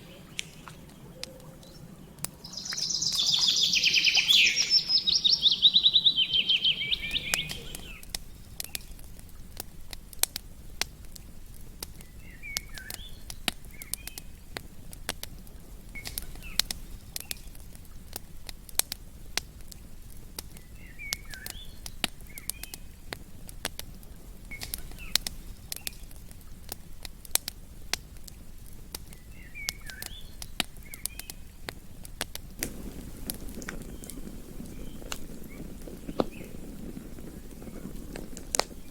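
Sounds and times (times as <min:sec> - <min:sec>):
rapid bird trill: 0:00.0 - 0:08.9
bird chirping: 0:00.0 - 0:09.2, 0:11.9 - 0:14.9, 0:20.5 - 0:23.5, 0:29.0 - 0:32.0, 0:32.7 - 0:38.9
campfire crackling and popping: 0:00.0 - 0:38.9.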